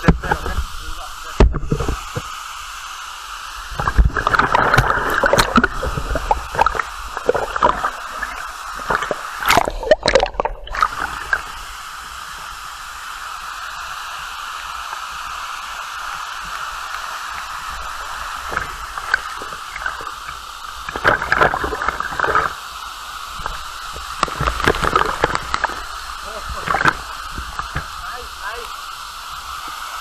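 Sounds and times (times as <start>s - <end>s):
water splashing and sloshing: 0.0s - 12.7s, 14.2s - 30.0s
waterfall rushing: 0.0s - 30.0s.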